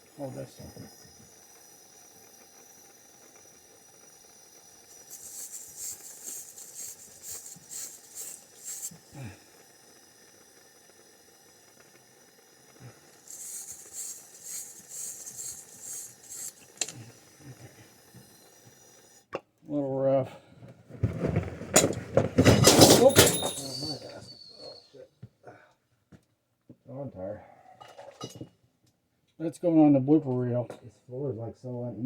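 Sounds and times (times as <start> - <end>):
brush scrubbing metal pipe: 5.0 - 9.2, 13.2 - 17.1.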